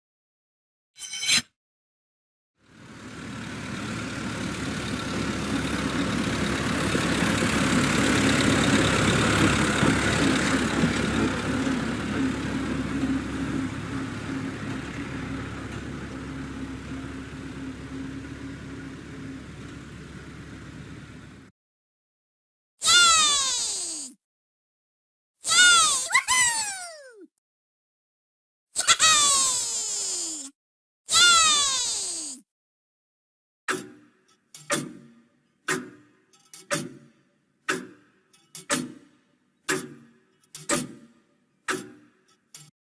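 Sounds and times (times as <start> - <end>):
engine-like drone: 2.6 - 21.5.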